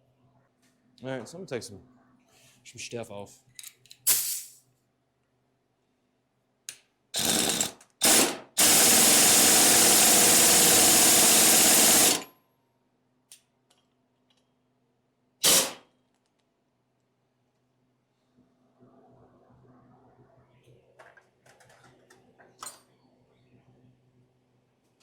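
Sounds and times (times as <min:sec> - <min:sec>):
impact wrench hammering: 0:07.2 - 0:12.2.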